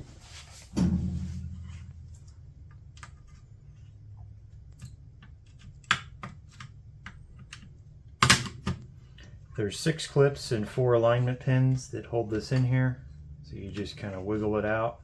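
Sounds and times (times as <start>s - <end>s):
low knock: 0.8s - 2.3s.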